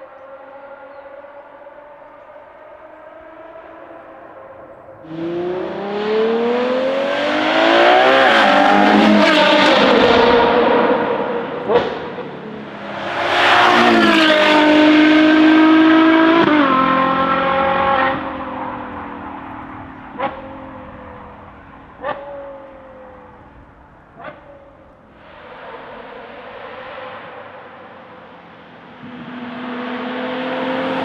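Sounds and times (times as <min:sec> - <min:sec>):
car engine revving hard: 0:05.0 - 0:18.6, 0:29.0 - 0:31.0.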